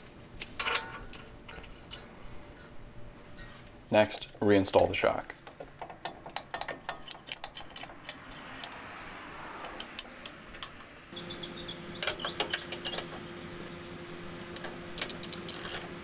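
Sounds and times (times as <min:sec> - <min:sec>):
steady hum: 0:11.2 - 0:16.0
ratchet wrench clicking: 0:14.5 - 0:15.9.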